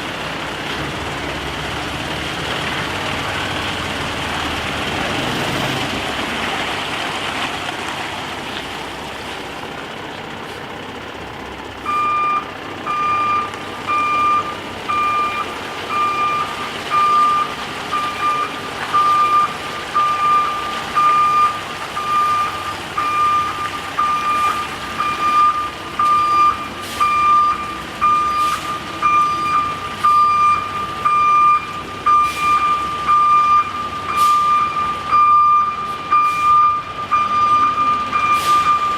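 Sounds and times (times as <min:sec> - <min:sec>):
truck engine running: 0:00.0 - 0:38.9
truck backup alarm beeping: 0:11.4 - 0:38.9.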